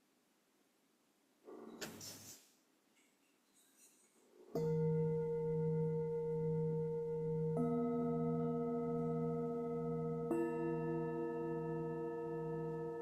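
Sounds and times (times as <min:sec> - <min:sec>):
singing bowls ringing: 0:04.6 - 0:13.0.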